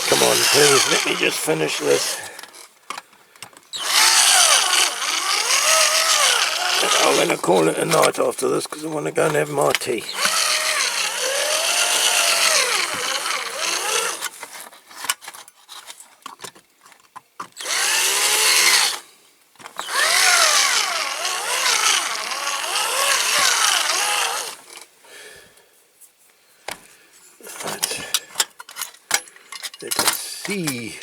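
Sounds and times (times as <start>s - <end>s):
cordless drill whining: 0.0s - 2.6s, 3.7s - 7.5s, 10.1s - 14.3s, 17.6s - 19.0s, 19.6s - 24.9s.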